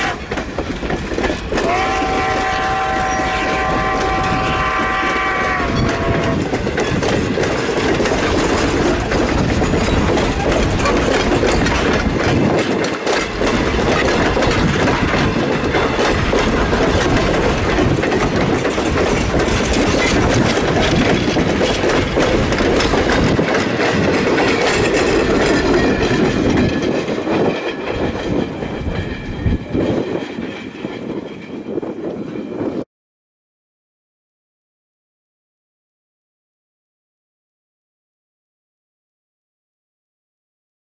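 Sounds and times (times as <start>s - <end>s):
wheels clattering over rail joints: 0.0s - 32.8s
train horn chord: 1.6s - 6.4s.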